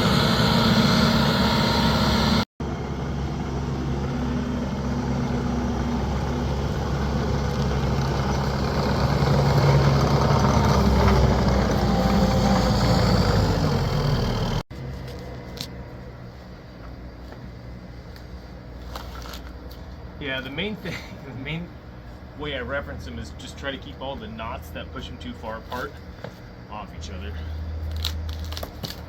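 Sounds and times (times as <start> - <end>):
heavy machinery motor hum: 0.0 - 14.6.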